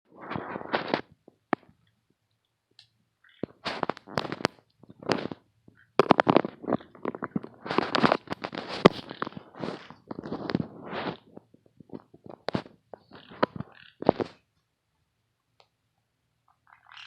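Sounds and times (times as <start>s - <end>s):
parrots making raspy crackling noises: 0.2s - 1.7s, 3.2s - 14.5s, 16.5s - 17.0s.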